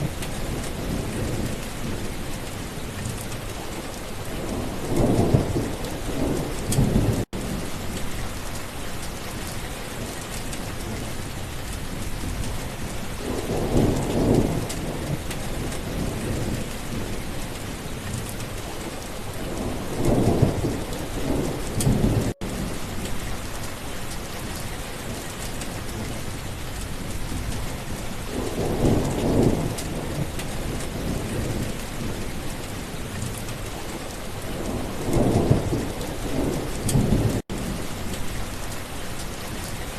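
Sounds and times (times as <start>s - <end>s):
steady rain: 0.0s - 39.9s
rolling thunder: 4.3s - 8.3s, 12.2s - 17.4s, 19.4s - 23.4s, 27.0s - 32.4s, 33.4s - 38.5s.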